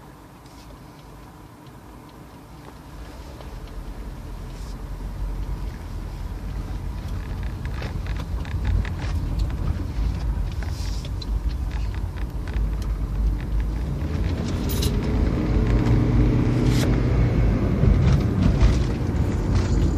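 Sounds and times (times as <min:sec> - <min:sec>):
car engine rumbling: 0:00.0 - 0:19.9.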